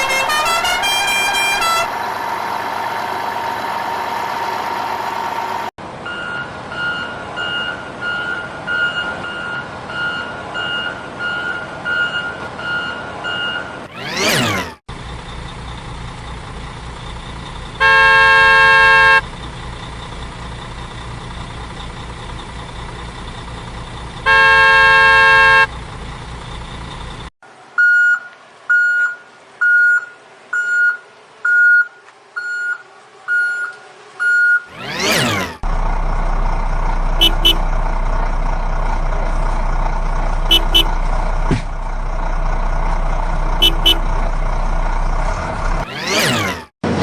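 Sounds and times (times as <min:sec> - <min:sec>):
truck horn honks: 0:00.0 - 0:05.7, 0:17.8 - 0:19.2, 0:24.2 - 0:25.7, 0:37.2 - 0:37.8, 0:40.4 - 0:41.1, 0:43.5 - 0:44.2
truck engine idling: 0:00.0 - 0:13.8, 0:14.9 - 0:27.3, 0:35.6 - 0:45.9
reversing beeps: 0:06.1 - 0:13.8, 0:27.8 - 0:34.7.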